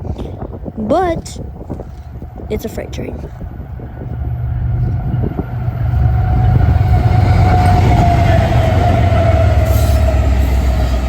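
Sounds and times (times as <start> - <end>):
freight train rumbling past: 2.2 - 11.0.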